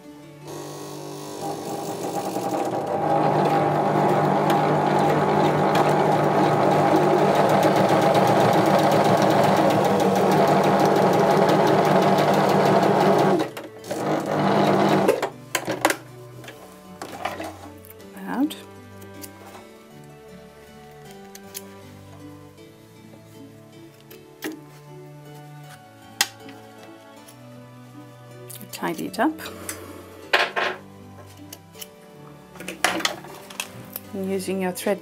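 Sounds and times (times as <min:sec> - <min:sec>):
electric sewing machine stitching: 0:00.5 - 0:15.3.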